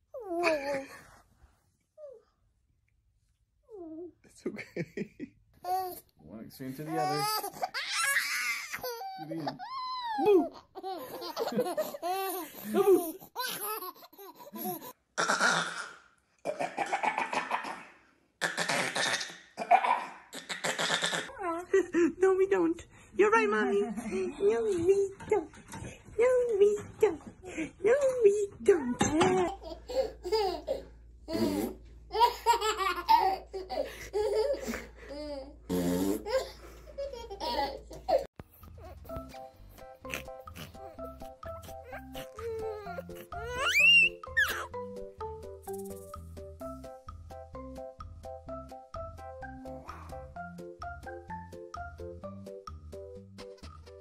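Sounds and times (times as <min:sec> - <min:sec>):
baby laughing: 0:06.9 - 0:17.8, 0:29.2 - 0:35.6, 0:36.2 - 0:39.1, 0:40.0 - 0:44.7
child squealing: 0:43.5 - 0:44.6.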